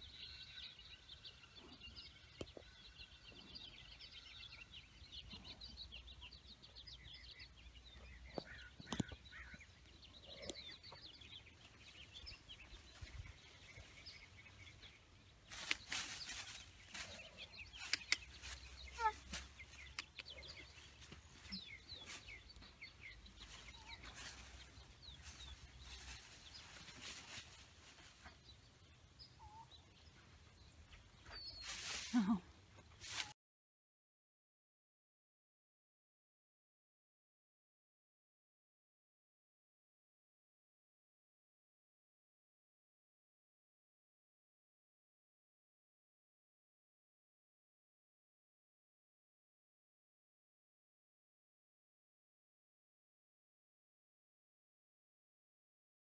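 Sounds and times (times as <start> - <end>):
faint birds chirping: 0.0 - 33.3.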